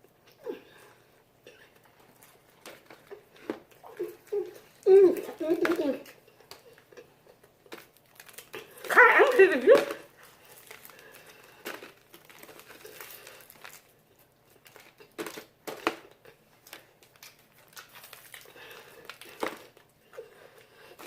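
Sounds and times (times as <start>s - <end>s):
crisp crunches of eating chicken: 10.2s - 19.9s.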